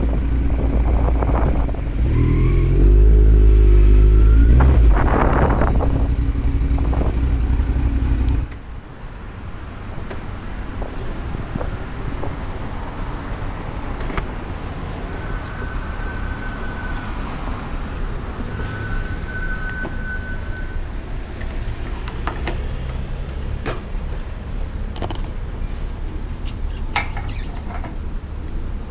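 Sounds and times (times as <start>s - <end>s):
motorcycle engine running: 0.0s - 8.6s
low traffic hum: 0.0s - 28.9s.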